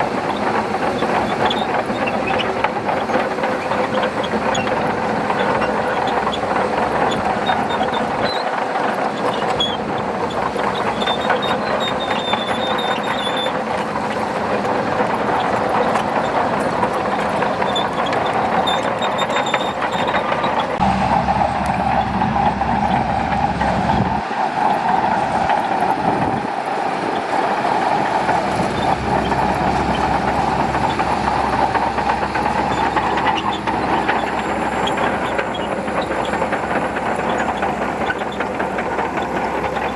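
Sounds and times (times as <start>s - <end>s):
bulldozer diesel engine under load: 0.0s - 39.9s
steel tracks clanking: 0.0s - 39.9s
deep rumble: 20.8s - 24.2s.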